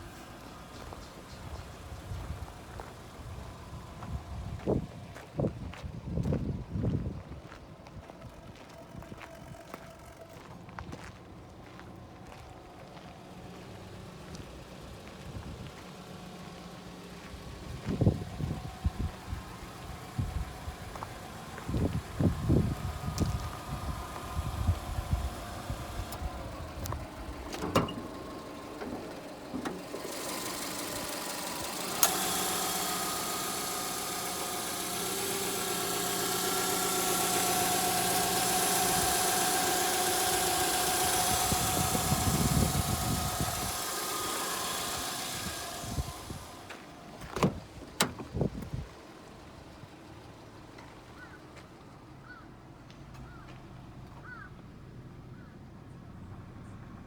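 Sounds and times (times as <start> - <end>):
car engine running: 0.0 - 57.0
sharp clunks: 26.9 - 30.7, 31.3 - 48.5.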